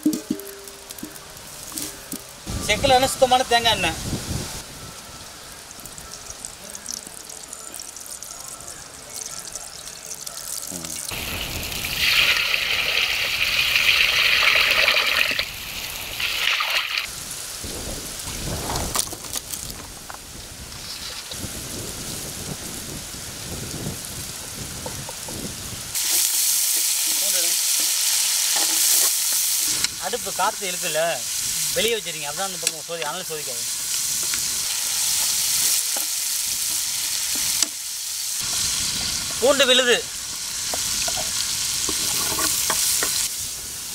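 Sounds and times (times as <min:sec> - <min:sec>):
loud steady hiss: 0:00.0 - 0:10.1, 0:10.7 - 0:43.9
vegetables sizzling in hot oil: 0:09.2 - 0:43.9
ladle stirring in a pan: 0:26.0 - 0:29.9, 0:40.7 - 0:43.3.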